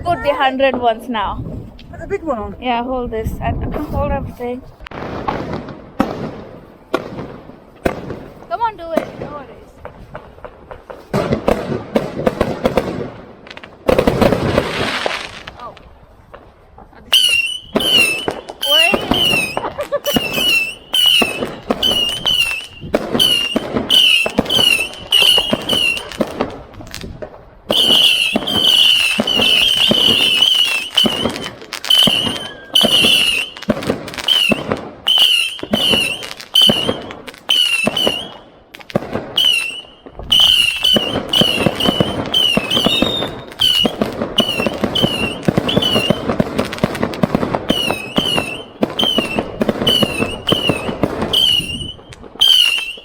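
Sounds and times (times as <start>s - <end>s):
firework pops and crackling: 0.4s - 2.0s, 3.7s - 53.0s
firework whistles: 17.1s - 26.4s, 27.7s - 38.6s, 39.2s - 46.4s, 47.6s - 53.0s.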